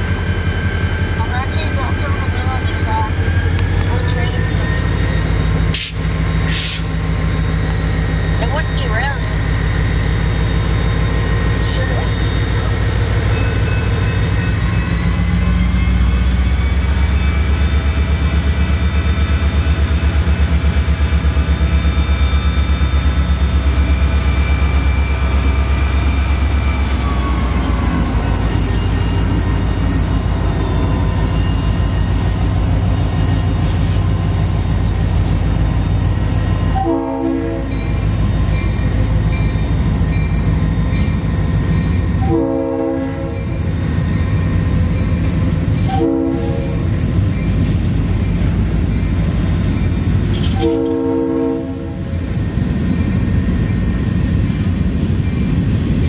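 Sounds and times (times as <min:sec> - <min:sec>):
train rumbling past: 0:00.0 - 0:56.0
train horn blast: 0:36.8 - 0:37.8, 0:42.2 - 0:43.4, 0:45.9 - 0:46.8, 0:50.5 - 0:52.1.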